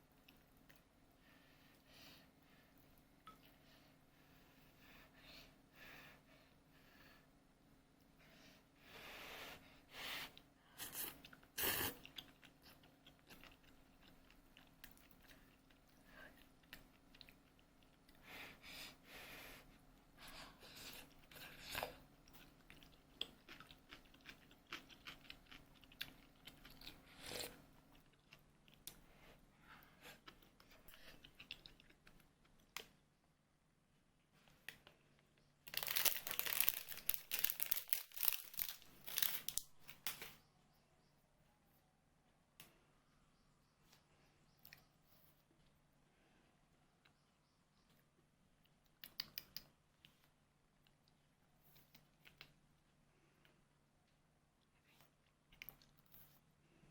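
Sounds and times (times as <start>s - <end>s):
person chewing and crunching food: 10.4s - 18.2s, 20.5s - 32.8s, 35.6s - 39.9s.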